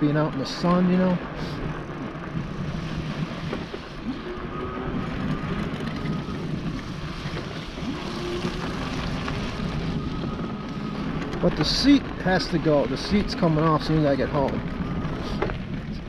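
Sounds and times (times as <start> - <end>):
wind rumbling on microphone: 0.0 - 16.0
electric motor whining: 0.6 - 15.7.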